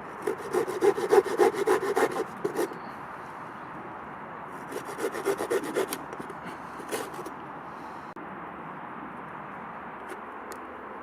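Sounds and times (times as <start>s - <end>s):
saw cutting wood: 0.0s - 2.8s, 4.6s - 7.3s.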